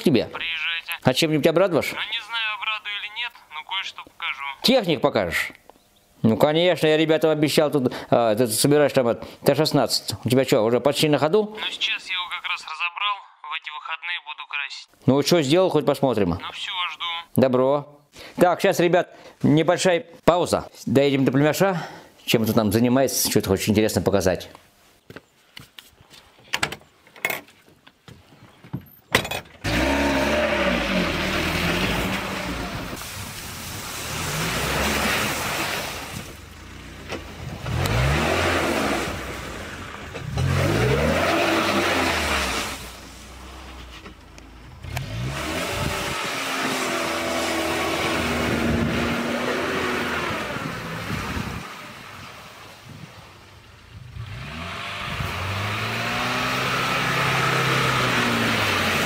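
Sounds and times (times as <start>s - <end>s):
car engine starting and revving: 29.6s - 33.1s, 33.9s - 52.6s, 53.9s - 59.0s.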